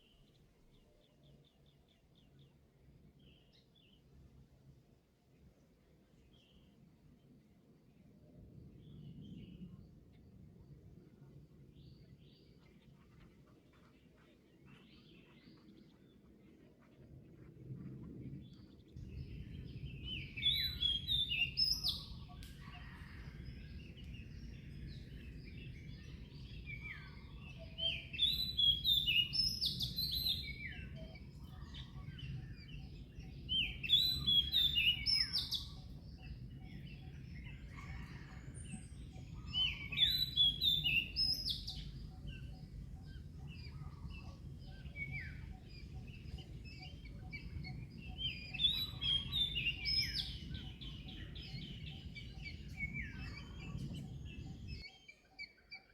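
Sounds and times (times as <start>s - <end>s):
songbird chirping: 0.0s - 55.9s.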